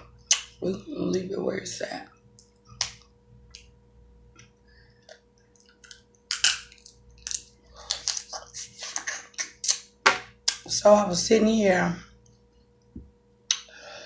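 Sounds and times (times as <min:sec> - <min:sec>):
crab shells cracking: 0:05.5 - 0:08.4.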